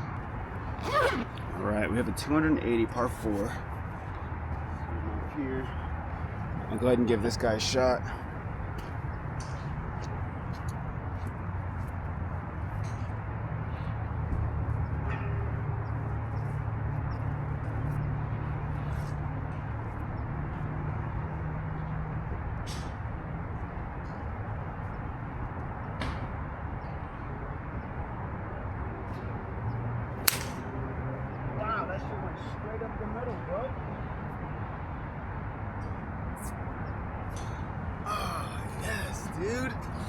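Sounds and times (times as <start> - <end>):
golf club striking ball: 30.2 - 30.7.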